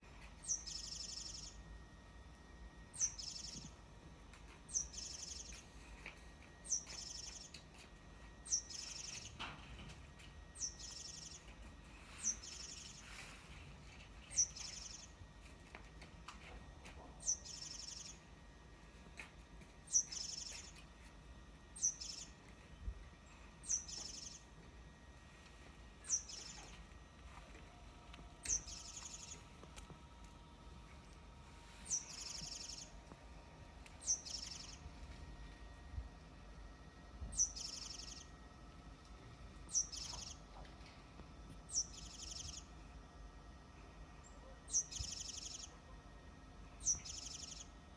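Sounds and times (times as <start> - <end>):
songbird singing: 0.2 - 1.7, 2.9 - 3.8, 4.4 - 5.7, 6.6 - 9.9, 10.5 - 15.2, 17.0 - 18.3, 19.8 - 20.9, 21.8 - 22.5, 23.2 - 24.6, 26.0 - 26.9, 27.7 - 30.0, 31.1 - 33.2, 33.8 - 35.1, 37.2 - 38.4, 39.5 - 41.0, 41.7 - 42.8, 43.9 - 45.9, 46.6 - 47.8.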